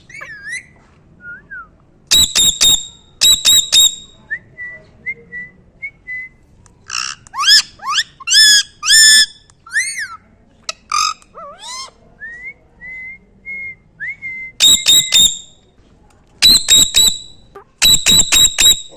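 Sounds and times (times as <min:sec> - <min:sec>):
parrot whistling and calling: 0:00.1 - 0:00.8, 0:02.1 - 0:04.2, 0:06.9 - 0:10.2, 0:14.6 - 0:15.6, 0:16.4 - 0:18.9.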